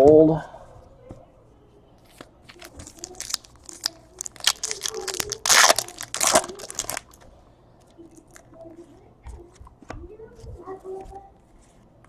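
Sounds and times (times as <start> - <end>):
plastic wrapper tearing and crinkling: 2.5 - 7.2.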